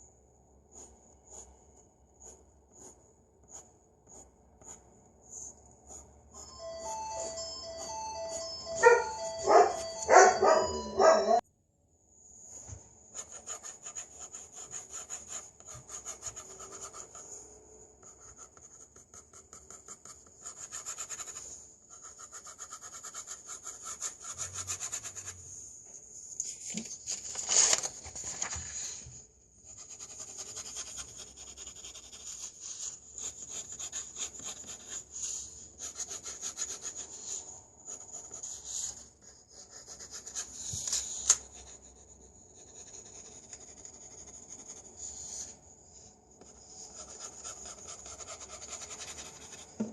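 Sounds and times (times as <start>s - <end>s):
pencil scratching on paper: 0.6s - 6.5s, 13.1s - 25.5s, 29.6s - 45.6s, 46.4s - 49.9s.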